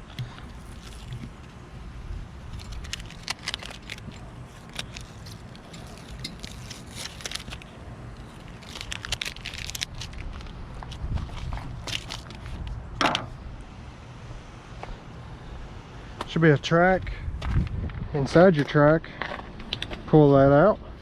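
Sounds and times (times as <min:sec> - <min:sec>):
stickers peeling and crackling: 0:00.1 - 0:01.7, 0:02.4 - 0:12.9
low rumble: 0:17.0 - 0:18.4.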